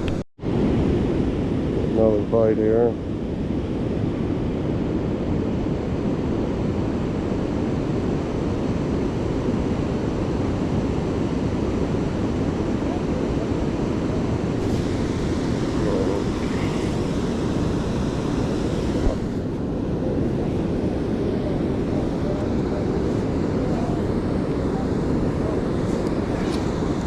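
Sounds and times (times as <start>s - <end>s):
water rushing over spillway: 14.6s - 19.6s.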